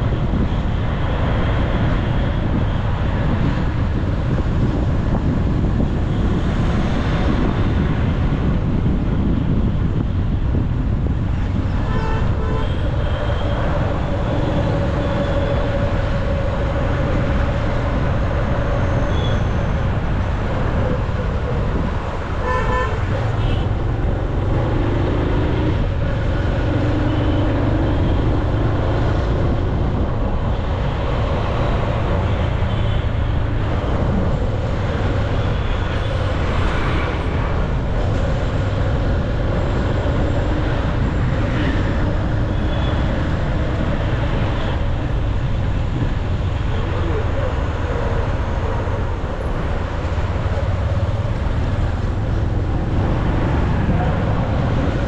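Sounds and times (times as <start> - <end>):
road traffic noise: 0.0 - 55.0
vehicle horns tooting: 22.4 - 23.8.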